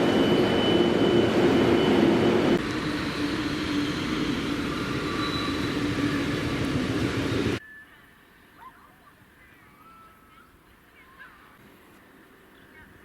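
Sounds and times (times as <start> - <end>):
whining tones: 0.0 - 7.6
train passing: 0.0 - 7.8
faint bird chirps: 7.6 - 11.6.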